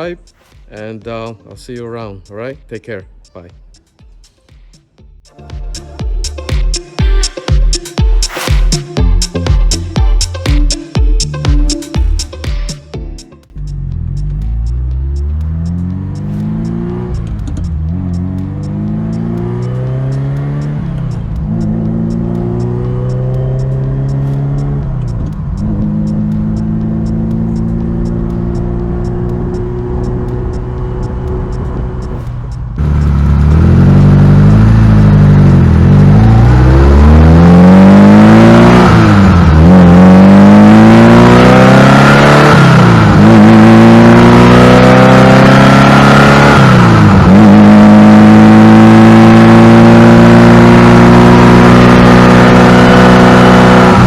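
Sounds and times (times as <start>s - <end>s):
car engine accelerating through gears: 13.5s - 54.0s.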